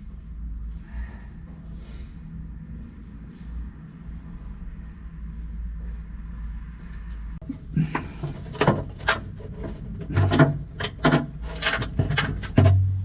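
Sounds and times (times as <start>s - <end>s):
steady low hum: 0.0s - 13.0s
hands fumbling with hardware: 7.4s - 13.0s.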